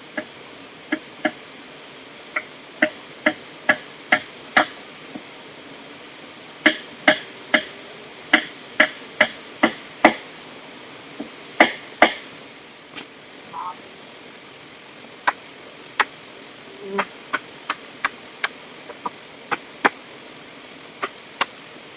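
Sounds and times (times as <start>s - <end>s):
steady background hiss: 0.0s - 21.9s.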